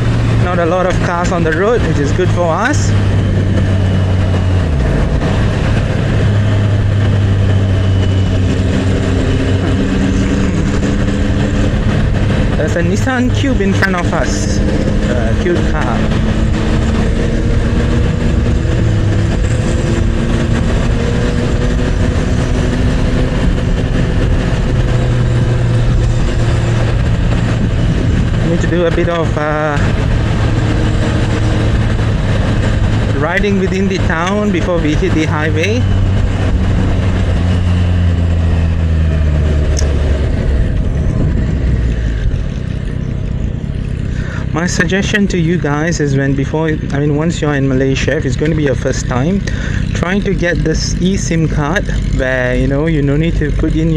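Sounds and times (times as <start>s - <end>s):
heavy wind noise: 0.0s - 53.9s
motorcycle engine running: 0.0s - 53.9s
road noise: 0.0s - 53.9s.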